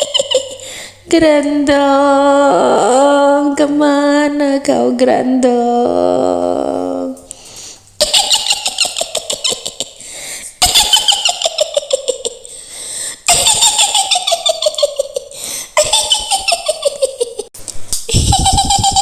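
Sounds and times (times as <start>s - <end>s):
shrill cackling witch laugh: 0.0s - 0.7s, 8.0s - 10.0s, 10.6s - 12.6s, 13.3s - 17.5s, 18.1s - 19.0s.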